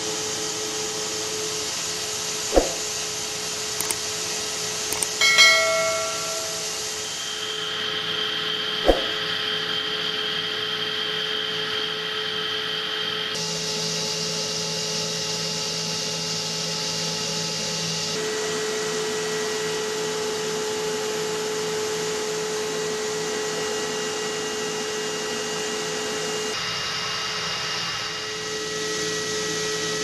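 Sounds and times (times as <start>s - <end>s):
held high tones: 5.0s - 7.0s.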